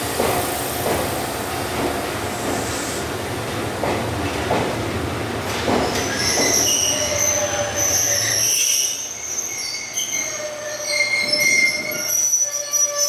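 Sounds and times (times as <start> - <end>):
train running rumble: 0.0 - 7.4
train wheels and brakes squealing: 5.7 - 13.0.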